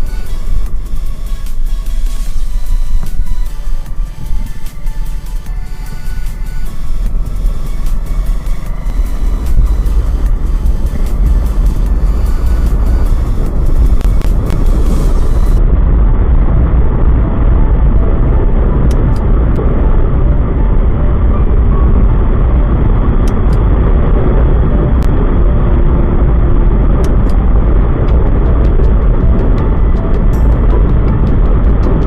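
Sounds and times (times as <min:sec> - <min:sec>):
motorcycle engine: 0:00.0 - 0:15.6
wind rush over microphone: 0:00.0 - 0:32.0.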